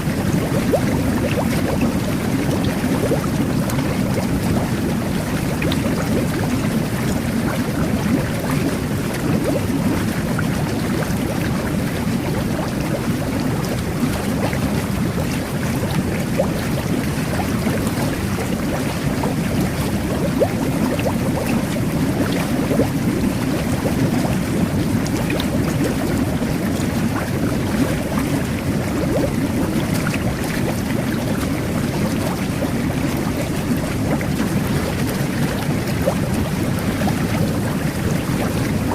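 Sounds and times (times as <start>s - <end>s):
jet bath churning water: 0.0s - 38.9s
small bubble pops: 0.1s - 38.9s.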